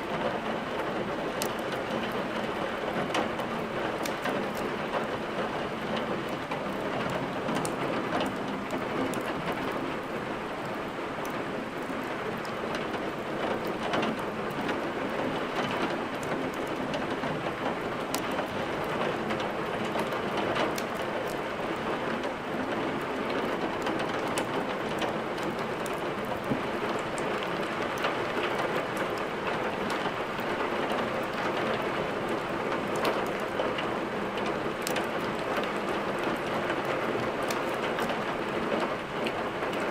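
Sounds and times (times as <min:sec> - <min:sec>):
steady rain: 0:00.0 - 0:39.9
wood fire crackling: 0:17.8 - 0:21.4, 0:34.7 - 0:35.6.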